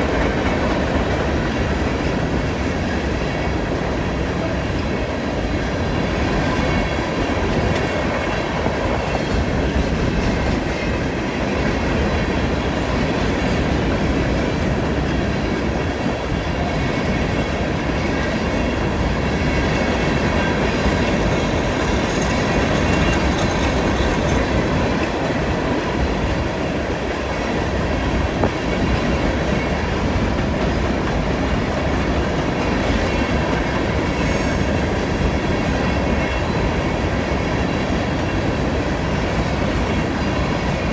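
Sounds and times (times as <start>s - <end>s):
train cars rumbling past: 0.0s - 40.9s
wheel clatter over rail joints: 18.5s - 40.9s.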